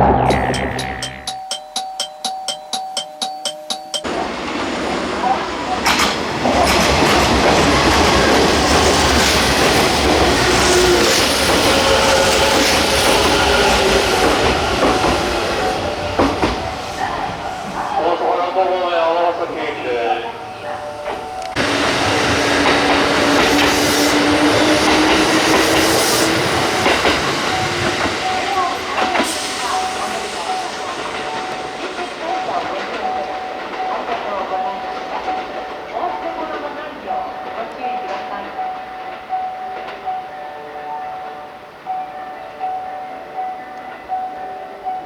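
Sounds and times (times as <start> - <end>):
train wheels clacking over rail joints: 4.0 - 19.3, 20.8 - 40.0.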